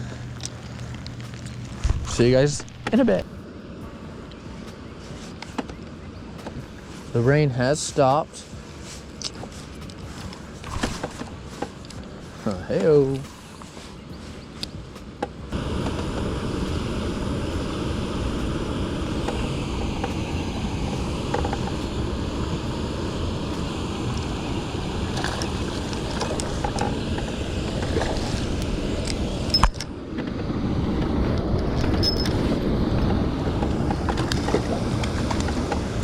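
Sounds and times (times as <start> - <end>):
water noise: 0.0 - 36.0
wind buffeting microphone: 0.0 - 36.0.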